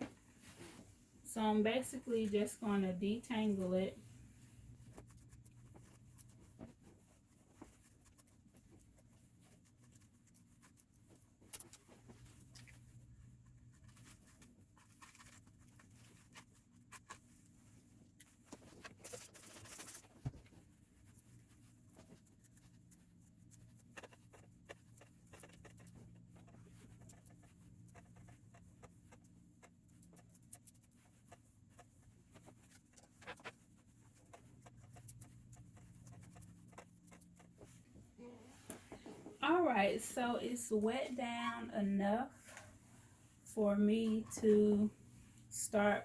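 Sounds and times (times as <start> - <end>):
small clicks and ticks: 7.6 - 17.3, 18.2 - 37.9.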